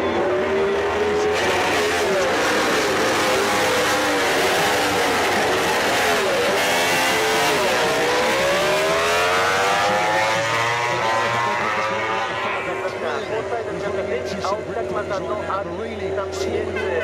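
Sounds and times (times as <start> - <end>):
racing motorcycle engines: 0.0 - 17.0.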